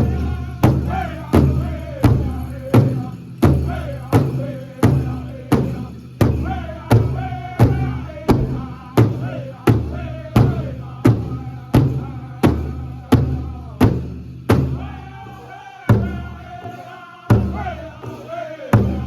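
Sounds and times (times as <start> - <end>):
group singing high vocals: 0.0 - 14.0, 14.6 - 19.0
hand drum strikes: 7.6 - 8.8.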